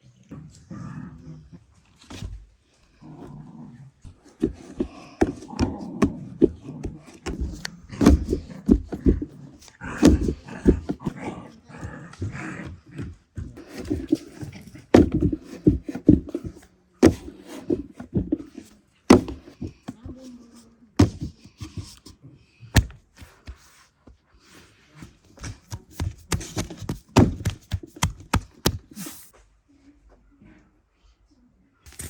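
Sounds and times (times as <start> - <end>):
knocks taps and thuds: 4.1 - 11.1, 13.0 - 20.2, 21.0 - 22.1, 25.4 - 29.0.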